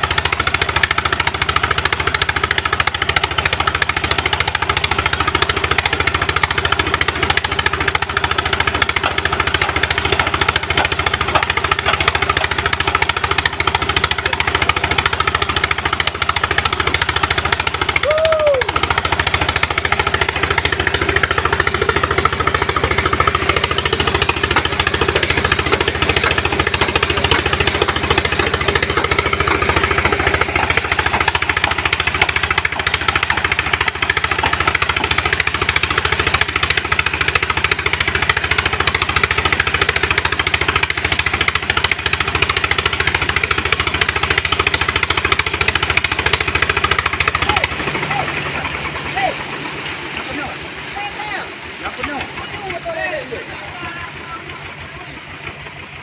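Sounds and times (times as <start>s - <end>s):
pump engine knocking steadily: 0.0s - 56.0s.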